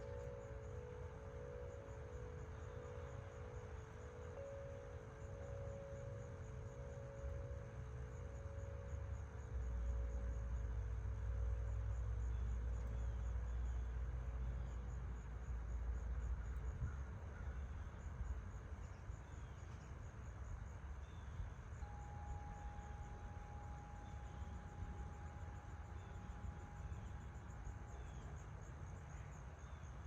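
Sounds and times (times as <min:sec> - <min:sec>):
wind chimes ringing: 0:00.0 - 0:09.2
crickets chirping: 0:00.0 - 0:30.0.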